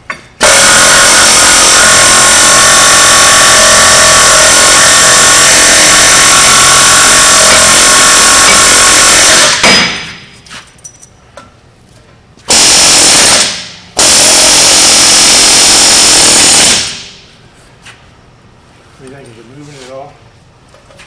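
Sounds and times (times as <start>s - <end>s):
loud pneumatic tool: 0.4s - 10.3s, 12.5s - 17.3s.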